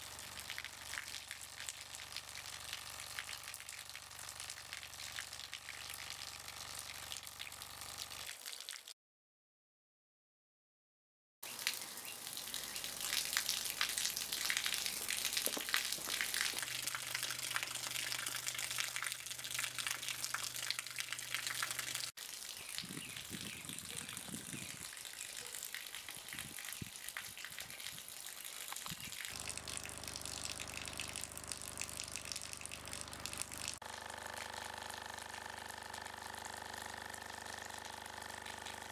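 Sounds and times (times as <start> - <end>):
water gushing and splashing: 11.6 - 22.7
different low hum: 12.4 - 22.1.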